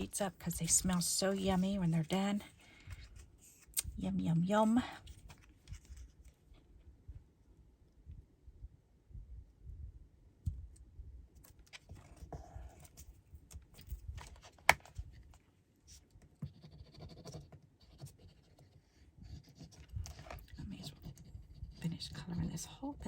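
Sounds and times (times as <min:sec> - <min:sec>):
marker scratching on paper: 0:16.4 - 0:19.8.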